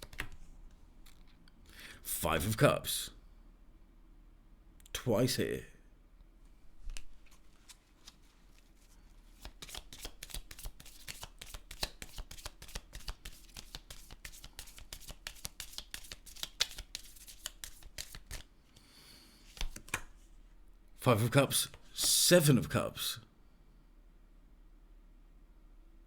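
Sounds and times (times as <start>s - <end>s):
cards being shuffled by hand: 0.0s - 1.4s, 6.8s - 20.3s.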